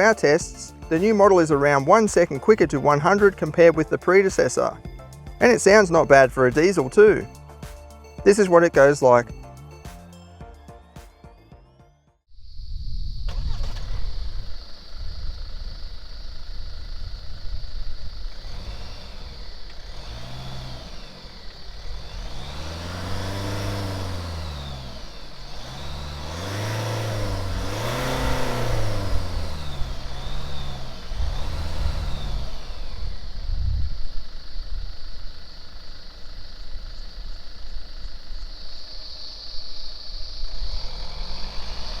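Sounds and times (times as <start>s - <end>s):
diesel engine revving: 0.0s - 11.5s, 13.3s - 42.0s
steady high whine: 12.4s - 42.0s.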